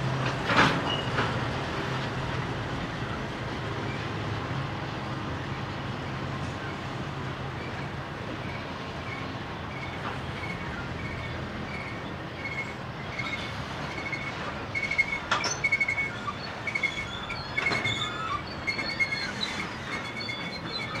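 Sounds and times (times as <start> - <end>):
freight cars clanking: 0.0 - 21.0
wheels rumbling on track: 0.0 - 21.0
wheel squeals: 0.5 - 1.4, 7.5 - 21.0.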